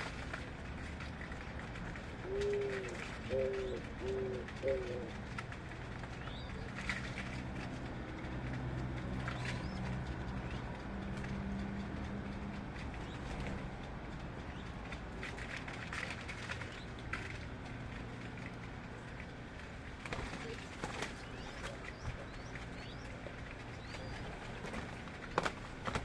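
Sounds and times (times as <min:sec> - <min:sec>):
steady low hum: 0:00.0 - 0:26.0
dove cooing: 0:02.2 - 0:05.4.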